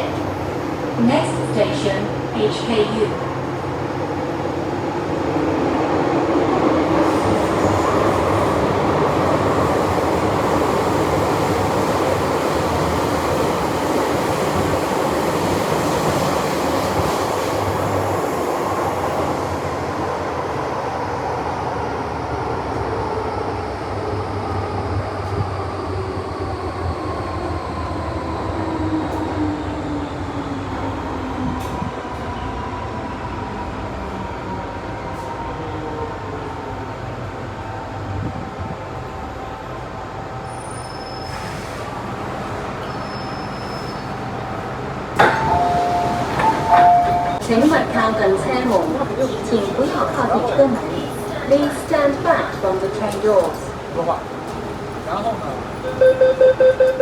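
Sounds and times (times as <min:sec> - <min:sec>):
train wheel and running noise: 0:00.0 - 0:57.0.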